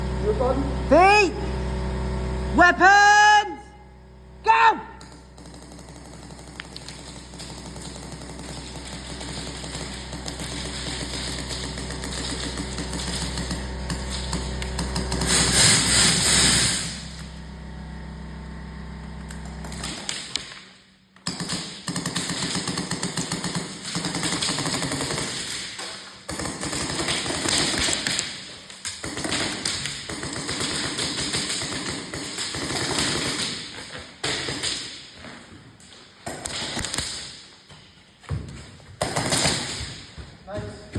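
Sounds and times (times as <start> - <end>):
airsoft guns firing full-auto bursts: 5.1 - 17.1, 21.2 - 34.9, 39.0 - 39.9.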